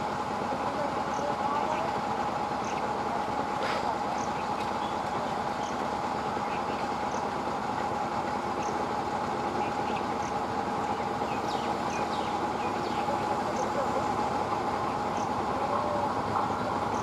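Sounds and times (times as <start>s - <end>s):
constant hum: 0.0s - 17.0s
train running on track: 0.0s - 17.0s.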